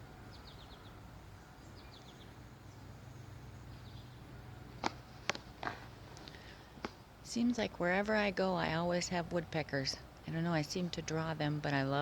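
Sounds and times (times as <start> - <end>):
faint outdoor hush: 0.0 - 12.0
woodpeckers chirping: 0.3 - 4.3.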